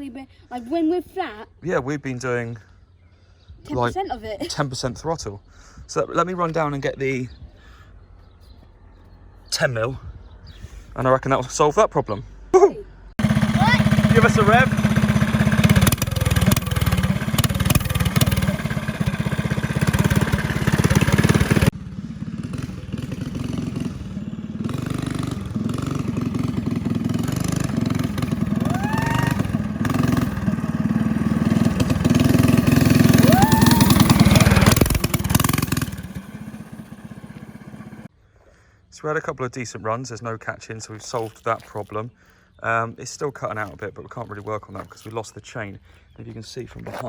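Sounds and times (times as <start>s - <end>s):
go-kart engine revving: 13.2s - 38.1s.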